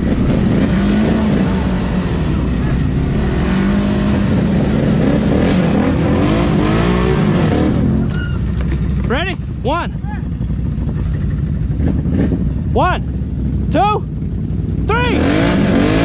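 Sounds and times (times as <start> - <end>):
atv engines revving: 0.0 - 16.0.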